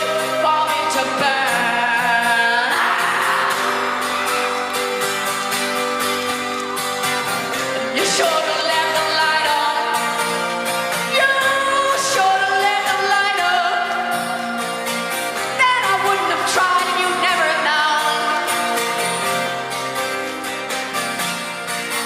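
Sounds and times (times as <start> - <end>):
woman singing: 0.0 - 3.8, 7.8 - 10.2, 11.0 - 14.1, 15.4 - 18.7
rock band playing: 0.0 - 12.2, 18.0 - 22.0
strummed guitar: 0.0 - 22.0.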